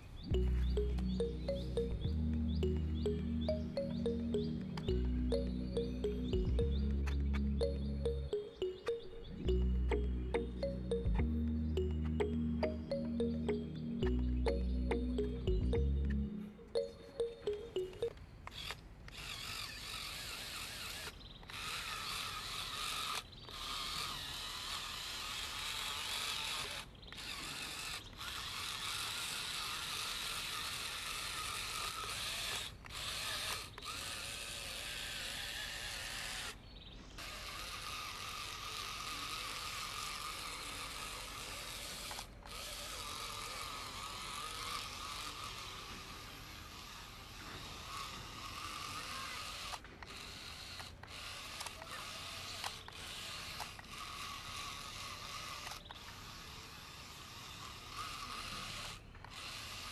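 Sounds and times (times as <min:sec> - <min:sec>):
small electric motor whirring: 0:18.4 - 0:36.6, 0:37.2 - 0:59.9.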